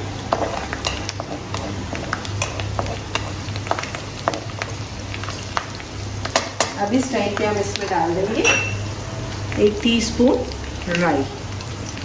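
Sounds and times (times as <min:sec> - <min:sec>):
spatula stirring: 0:00.0 - 0:06.7
chillies sizzling in oil: 0:00.0 - 0:12.0.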